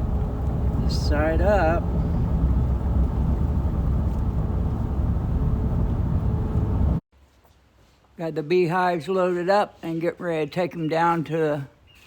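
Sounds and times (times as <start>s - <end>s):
car road and engine rumble: 0.0s - 7.0s.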